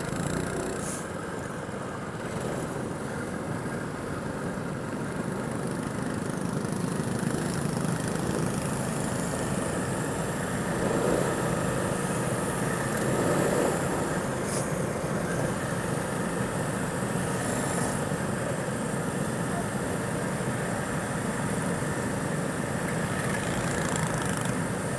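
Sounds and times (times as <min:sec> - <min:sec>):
go-kart engine running: 0:00.0 - 0:24.9.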